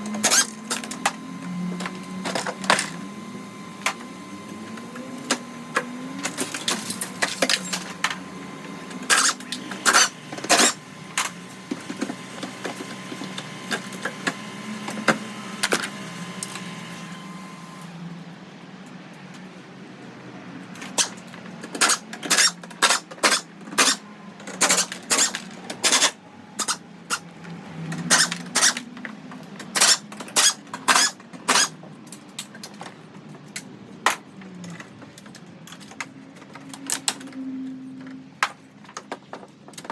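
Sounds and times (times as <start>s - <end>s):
metallic tool clicks and clanks: 20.8s - 27.2s, 28.0s - 28.9s, 29.6s - 32.8s.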